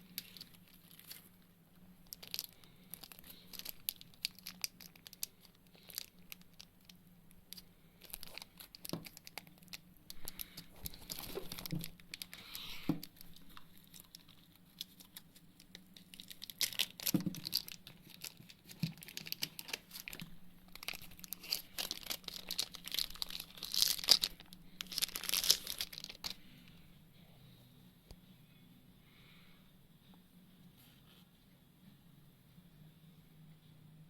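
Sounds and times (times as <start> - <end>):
plastic wrapping crinkling and tearing: 0.0 - 1.4, 2.0 - 26.4.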